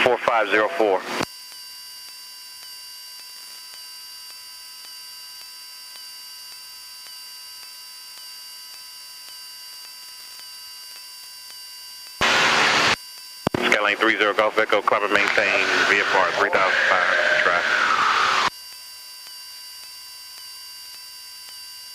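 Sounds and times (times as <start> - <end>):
radio static burst: 0.0 - 1.2, 12.2 - 18.5
electrical hum and whine: 0.0 - 21.9
faint regular ticks: 1.5 - 12.2, 18.6 - 21.9.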